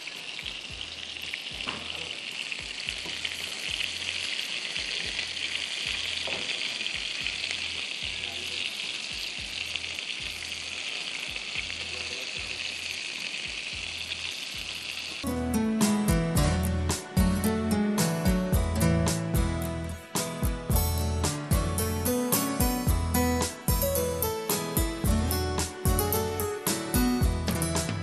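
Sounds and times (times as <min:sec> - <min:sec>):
meat sizzling in a frying pan: 0:00.0 - 0:16.6.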